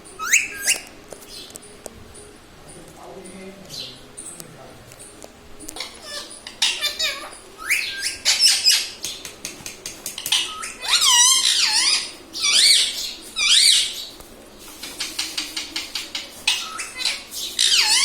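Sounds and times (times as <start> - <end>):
parrot warbling calls: 0.2 - 0.8, 5.8 - 9.0, 10.2 - 13.9, 16.4 - 18.0.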